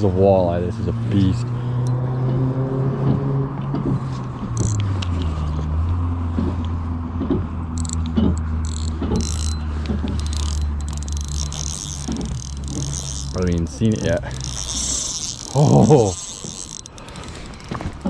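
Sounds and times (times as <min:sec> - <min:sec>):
motor humming: 0:04.5 - 0:05.1, 0:07.8 - 0:18.0
short clicks: 0:04.6 - 0:05.3, 0:07.8 - 0:18.0.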